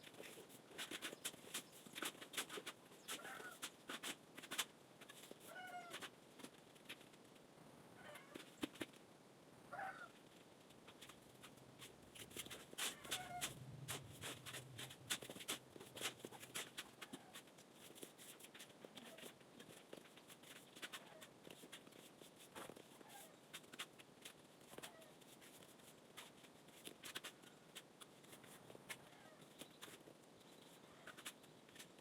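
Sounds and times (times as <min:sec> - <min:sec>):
faint short animal calls: 0:09.7 - 0:10.2, 0:12.8 - 0:13.6.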